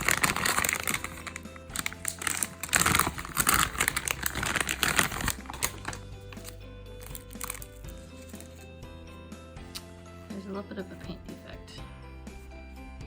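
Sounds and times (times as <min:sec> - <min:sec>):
plastic packaging crinkling: 0:00.0 - 0:08.6
soft background music: 0:00.0 - 0:13.0.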